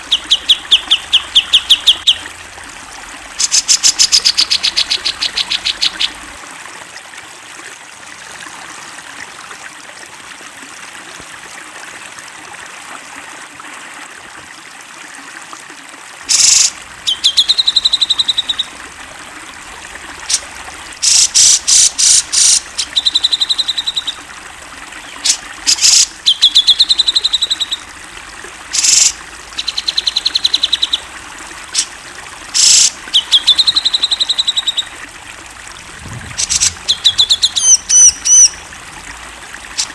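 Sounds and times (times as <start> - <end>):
bulbul harsh calls and trills: 0.0 - 6.3, 16.3 - 39.9
steady background hiss: 16.3 - 39.9.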